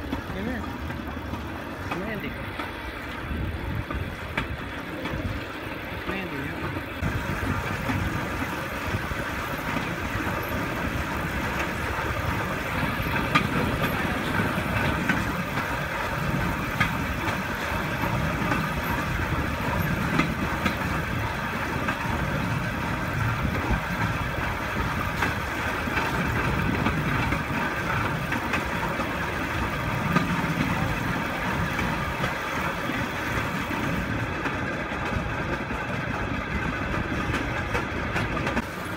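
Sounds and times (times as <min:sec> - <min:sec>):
steel wheels rolling on rails: 0:00.0 - 0:38.9
sharp rail clicks: 0:03.8 - 0:38.9.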